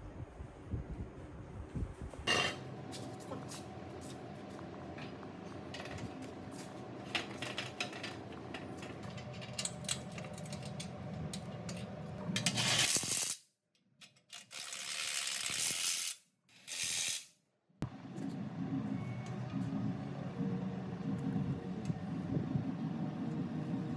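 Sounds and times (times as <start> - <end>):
small metal parts clinking: 12.4 - 13.4, 14.0 - 17.3
low steady hum: 17.8 - 23.9.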